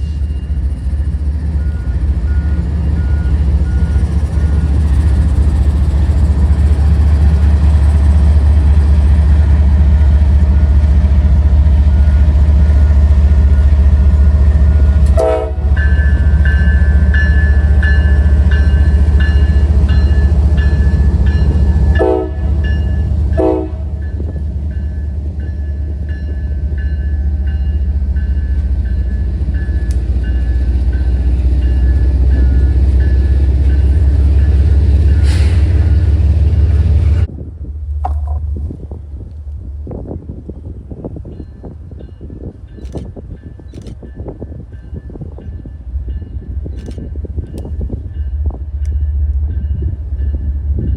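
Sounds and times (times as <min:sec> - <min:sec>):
diesel train passing: 0:00.0 - 0:50.9.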